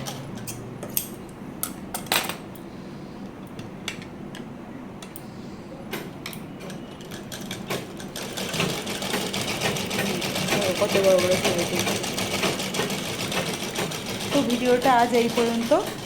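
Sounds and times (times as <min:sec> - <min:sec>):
sewing machine running: 0:07.1 - 0:16.0.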